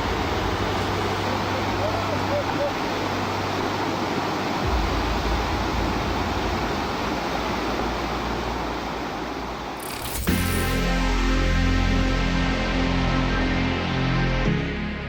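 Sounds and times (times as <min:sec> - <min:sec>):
rushing floodwater: 0:00.0 - 0:11.5
low droning note: 0:04.6 - 0:15.0.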